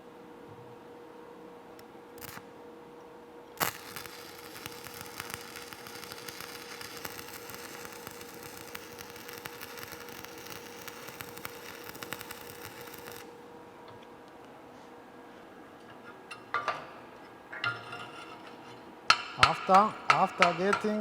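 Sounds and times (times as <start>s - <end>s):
welding arc crackling: 2.2s - 2.4s, 3.6s - 13.4s, 19.1s - 21.0s.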